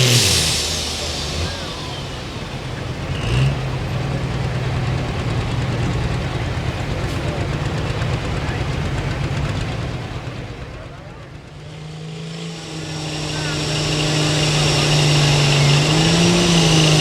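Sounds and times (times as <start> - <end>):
tractor engine running at low revs: 0.0 - 17.0.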